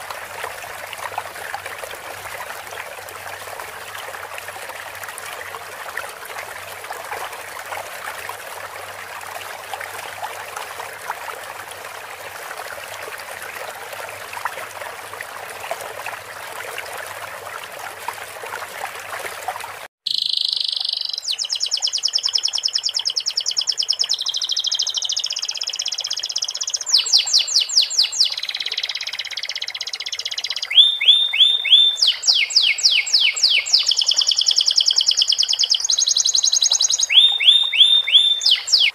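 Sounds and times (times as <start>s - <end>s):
water trickling: 0.0s - 38.9s
canary singing trills: 20.1s - 38.9s.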